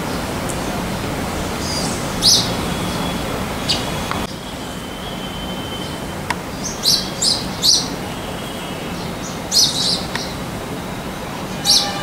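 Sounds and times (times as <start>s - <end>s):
small bird chirping: 1.6s - 10.4s.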